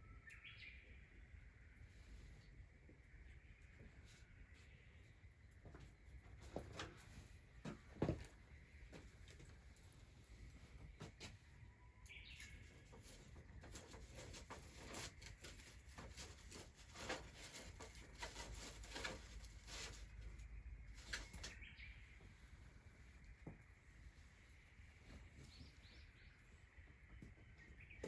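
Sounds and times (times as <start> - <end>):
rustling: 12.8 - 26.3.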